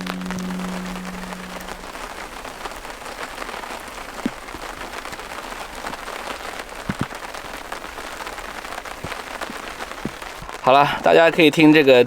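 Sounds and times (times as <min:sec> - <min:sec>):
rain pattering: 0:00.0 - 0:12.0.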